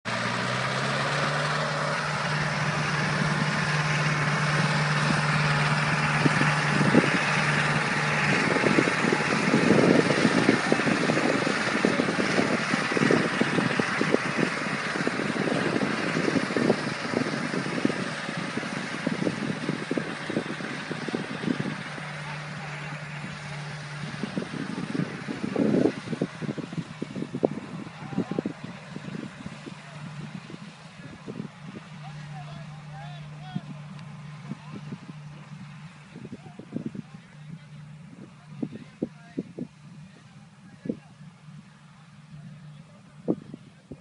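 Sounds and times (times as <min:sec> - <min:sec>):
tractor engine hum: 0:00.0 - 0:44.0
seeder clattering and rattling: 0:01.0 - 0:32.2.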